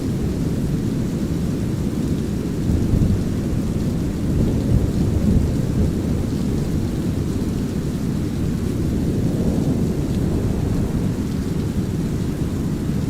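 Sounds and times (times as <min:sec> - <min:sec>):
low rolling thunder: 0:02.7 - 0:13.0.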